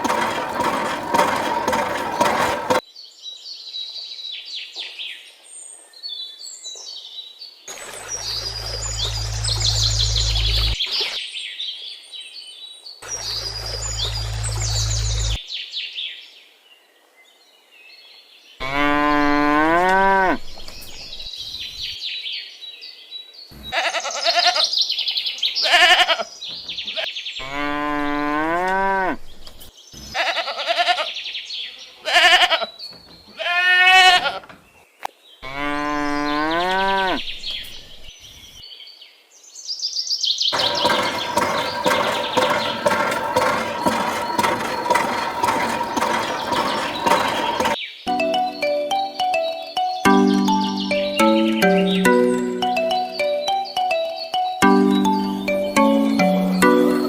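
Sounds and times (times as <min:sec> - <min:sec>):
steady mechanical hum: 0:00.0 - 0:02.8, 0:40.5 - 0:47.8
birds chirping: 0:40.5 - 0:48.0.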